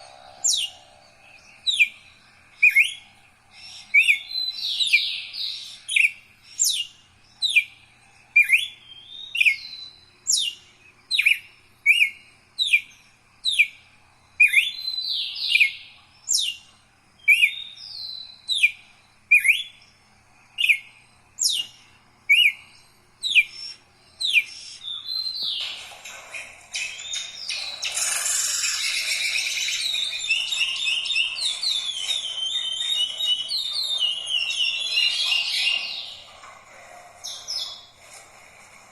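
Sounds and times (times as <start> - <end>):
songbird whistling and warbling: 0.0 - 7.8, 8.4 - 12.9, 14.4 - 16.6, 17.2 - 19.8, 20.6 - 36.5, 37.2 - 38.0.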